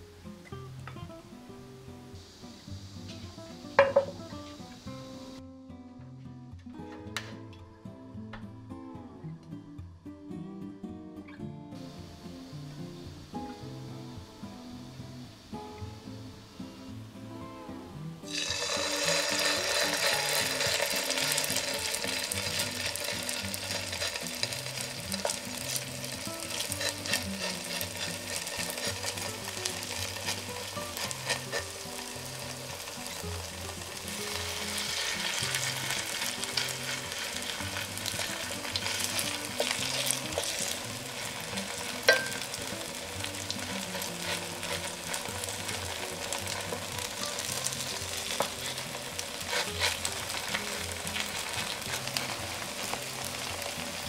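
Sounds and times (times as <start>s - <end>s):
batter sizzling in oil: 1.4s - 5.4s, 18.2s - 54.0s.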